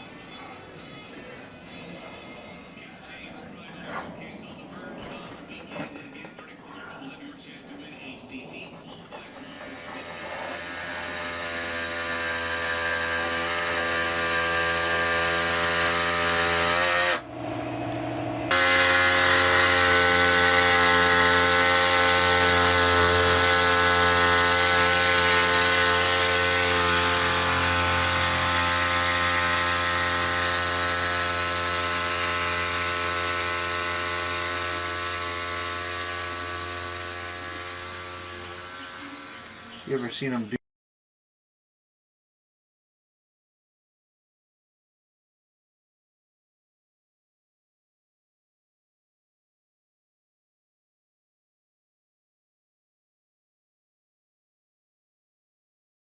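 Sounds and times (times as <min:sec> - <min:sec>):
power tool motor running: 0:09.3 - 0:40.0.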